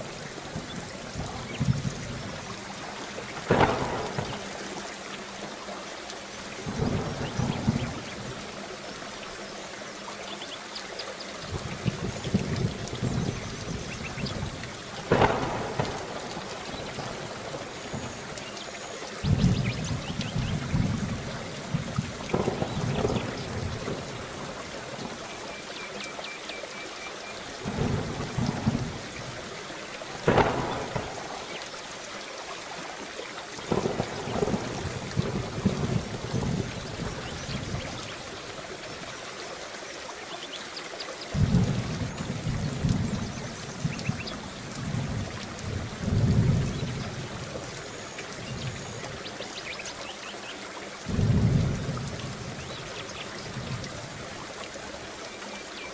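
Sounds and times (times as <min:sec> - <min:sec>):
thunder cracking and rumbling: 0:00.0 - 0:04.8, 0:06.6 - 0:08.4, 0:11.5 - 0:18.4, 0:19.2 - 0:25.2, 0:27.6 - 0:29.5, 0:30.1 - 0:31.7, 0:33.7 - 0:38.1, 0:41.3 - 0:47.7, 0:51.1 - 0:53.9
heavy rain falling: 0:00.0 - 0:55.9.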